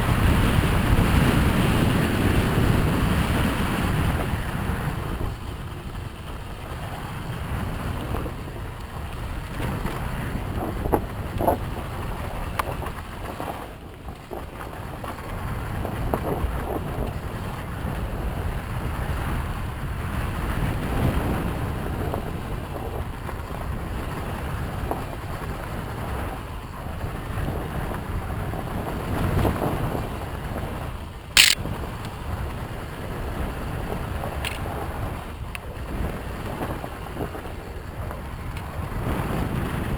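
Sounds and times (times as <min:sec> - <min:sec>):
wind noise on microphone: 0:00.0 - 0:22.9.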